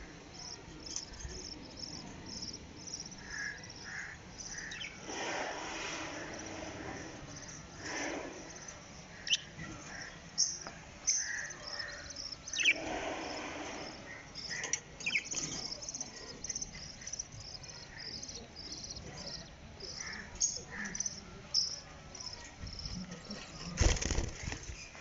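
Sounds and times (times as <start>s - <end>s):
budgerigars chirping and chattering: 9.1s - 24.9s.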